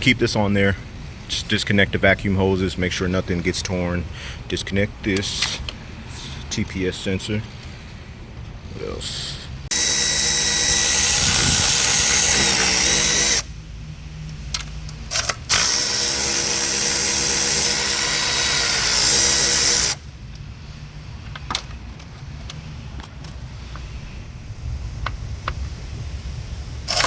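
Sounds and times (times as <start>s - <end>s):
power tool whirring: 9.7s - 13.6s, 14.9s - 20.1s.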